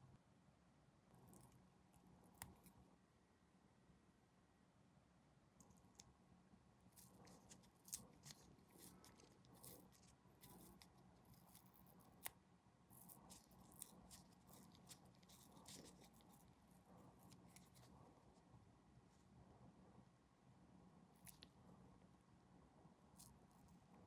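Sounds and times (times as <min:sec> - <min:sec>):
low steady hum: 0:00.0 - 0:24.0
plastic parts clicking and scraping: 0:13.0 - 0:16.5.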